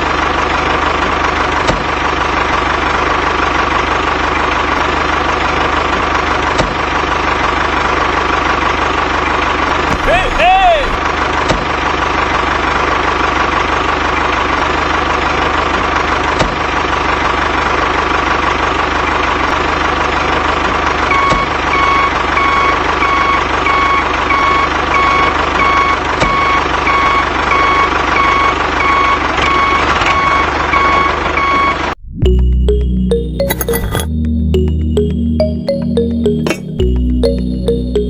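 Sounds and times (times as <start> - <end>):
vehicle engine running: 0.0 - 23.0
reversing alarm beeping: 21.1 - 34.0.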